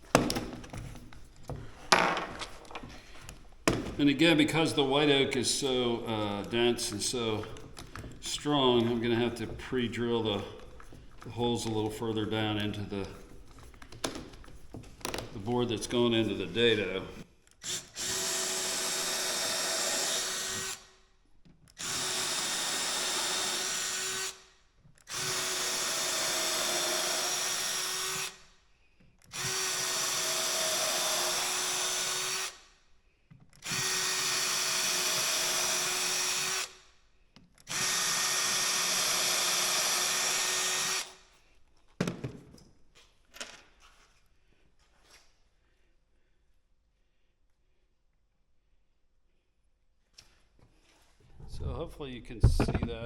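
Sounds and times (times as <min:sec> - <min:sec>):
power drill drilling into wood: 0:17.6 - 0:20.9, 0:21.8 - 0:24.5, 0:25.1 - 0:28.4, 0:29.3 - 0:32.6, 0:33.6 - 0:36.8, 0:37.7 - 0:41.2
clicks and knocks: 0:52.4 - 0:53.0.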